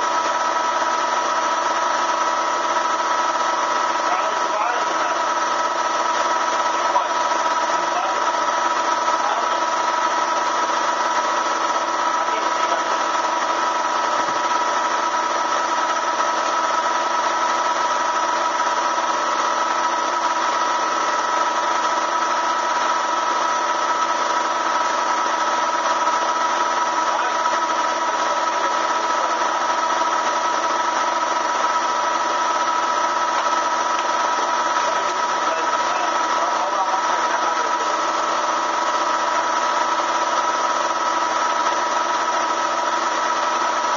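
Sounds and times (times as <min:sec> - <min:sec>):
vacuum motor whining: 0:00.0 - 0:43.9.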